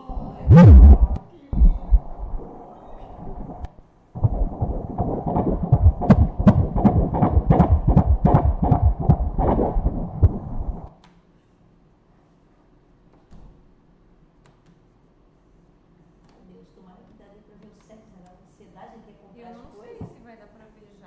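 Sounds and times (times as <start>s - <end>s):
fetal heartbeat whooshing pulses: 0.0s - 10.9s.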